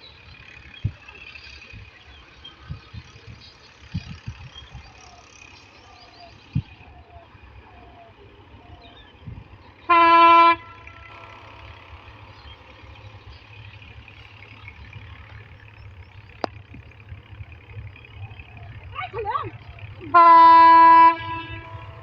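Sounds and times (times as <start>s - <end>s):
horn blast: 9.9s - 11.8s, 20.0s - 22.0s
low rumble: 10.6s - 22.0s.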